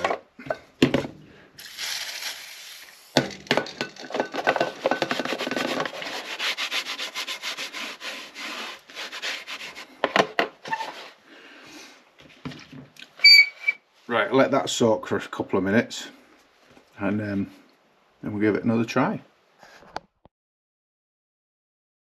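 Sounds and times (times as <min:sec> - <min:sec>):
cloth rubbing on painted panel: 0:05.2 - 0:10.0.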